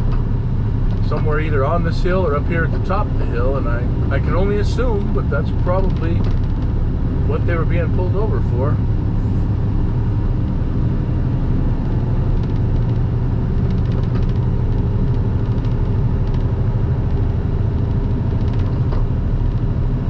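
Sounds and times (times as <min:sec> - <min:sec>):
road and tyre noise: 0:00.0 - 0:20.0
truck diesel engine drone: 0:00.0 - 0:20.0.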